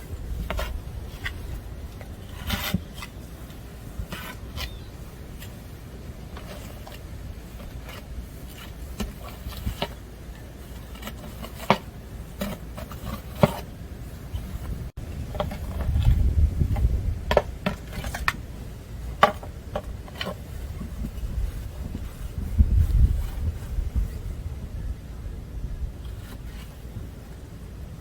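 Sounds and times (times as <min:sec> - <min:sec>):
snow scraping and crunching: 0:00.0 - 0:17.1, 0:19.8 - 0:24.7.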